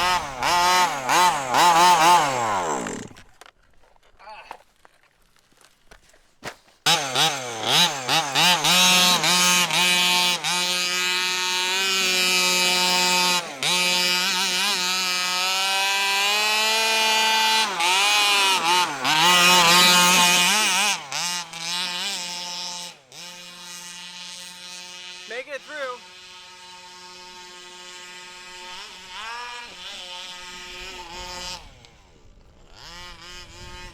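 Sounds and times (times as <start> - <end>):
small two-stroke engine revving: 0.0 - 3.6, 6.8 - 33.9.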